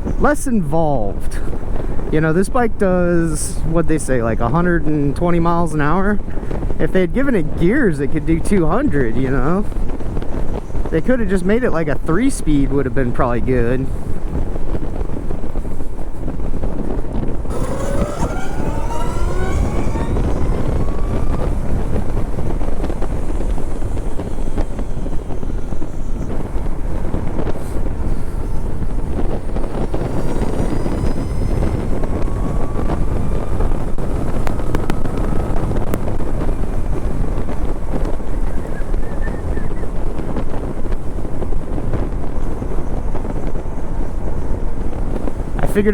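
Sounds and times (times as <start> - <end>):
road noise: 0.0 - 45.9
wind rushing over microphone: 0.0 - 45.9
electric motor whine rising: 17.4 - 39.1.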